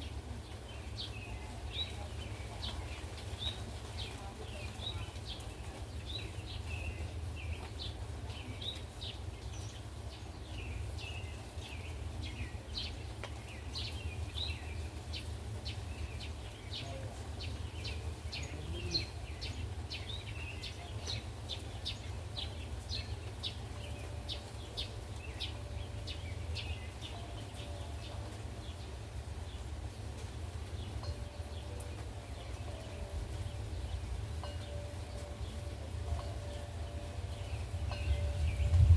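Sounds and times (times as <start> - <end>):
small birds chirping: 0.0 - 38.9
steady low rumble: 37.2 - 38.9.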